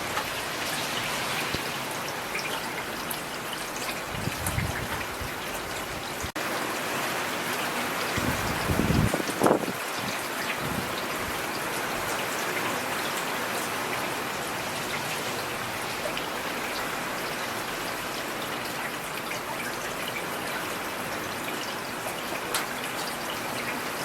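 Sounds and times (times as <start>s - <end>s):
raindrops tapping on a surface: 0.0s - 0.8s, 2.4s - 5.6s, 22.3s - 23.1s
steady rain falling: 0.0s - 24.0s.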